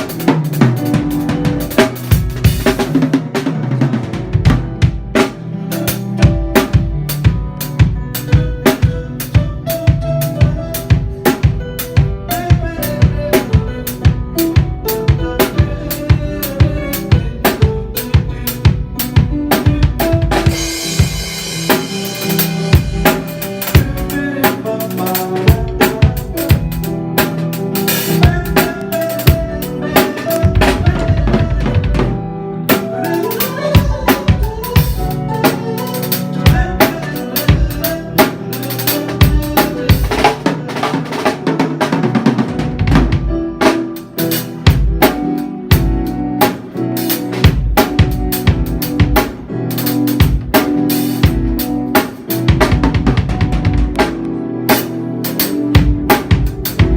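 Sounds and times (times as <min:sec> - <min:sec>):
bass and chord instruments: 0:00.0 - 0:56.9
drum kit groove: 0:00.0 - 0:56.9.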